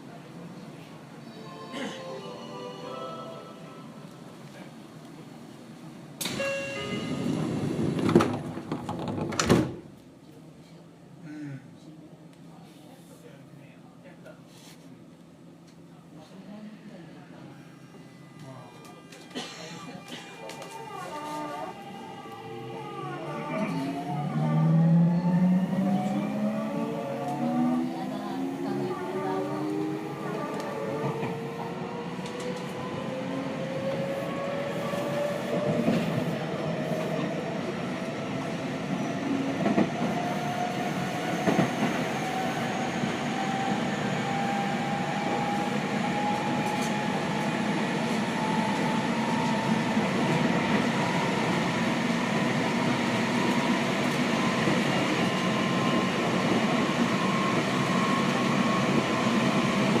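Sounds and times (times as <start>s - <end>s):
train running noise: 20.0s - 60.0s.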